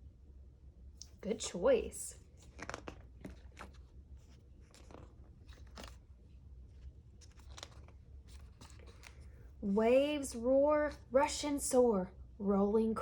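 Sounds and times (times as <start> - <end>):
paper rustling: 2.3 - 9.5.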